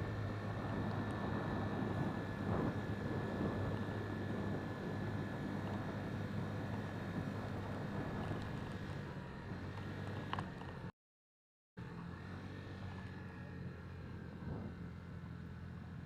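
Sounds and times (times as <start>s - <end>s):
distant engine rumble: 12.7s - 16.0s.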